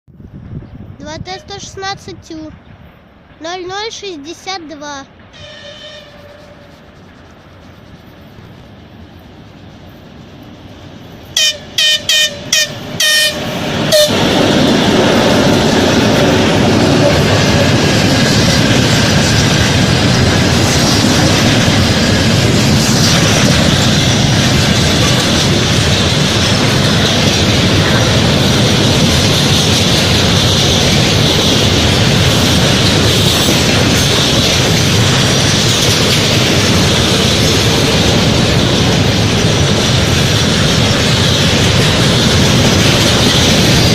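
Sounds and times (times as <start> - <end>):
locomotive engine and rail noise: 0.1 - 43.9
locomotive horn blasts: 5.4 - 6.8, 11.4 - 14.2.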